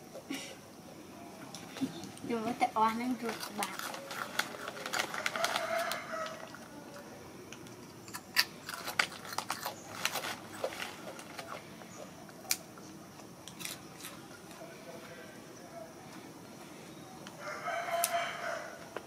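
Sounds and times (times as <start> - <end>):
rooster crowing: 5.0 - 6.9, 17.4 - 19.0.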